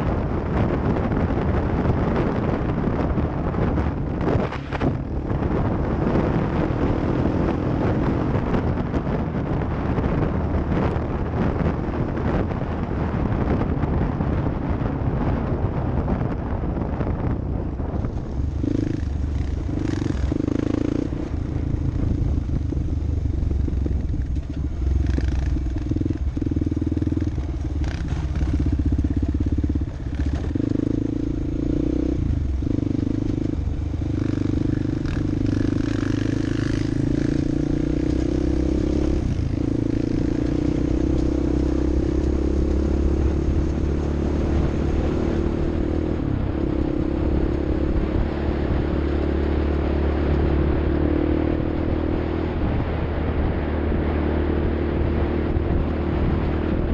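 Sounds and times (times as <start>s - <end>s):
off-road vehicle engine running: 0.0s - 56.9s
wind: 0.0s - 56.9s
rough ground noise: 17.7s - 43.8s
clatter: 23.8s - 30.6s.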